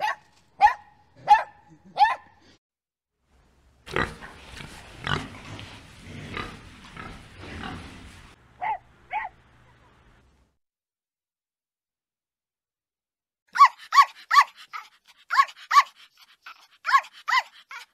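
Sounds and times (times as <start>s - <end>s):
pigs grunting and squealing: 3.9s - 8.4s
puppy yipping: 8.6s - 9.4s, 13.5s - 17.9s.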